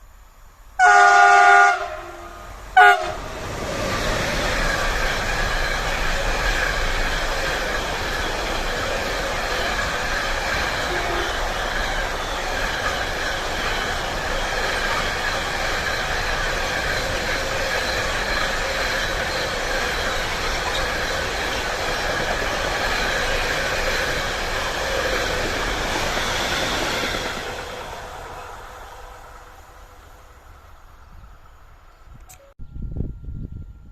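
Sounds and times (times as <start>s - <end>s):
train wheels rumbling on rails: 1.7s - 32.3s
high wheel squealing: 3.2s - 29.6s.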